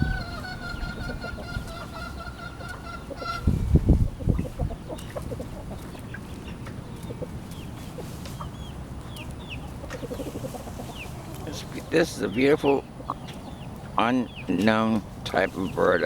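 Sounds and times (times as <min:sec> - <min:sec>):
bird clucking: 0:00.0 - 0:16.0
low rumble on microphone: 0:03.4 - 0:04.8
bird chirps: 0:05.8 - 0:14.8.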